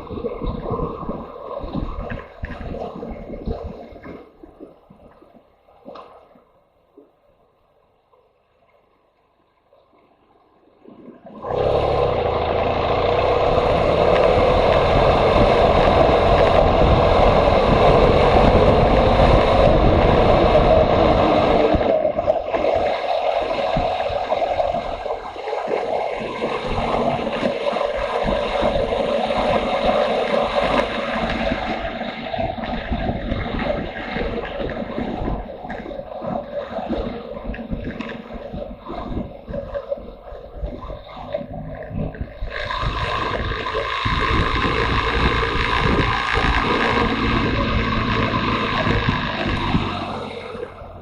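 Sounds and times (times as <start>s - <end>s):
wind buffeting microphone: 0.0s - 4.6s, 11.5s - 51.0s
motorcycle engine running: 11.5s - 21.8s, 42.1s - 51.0s.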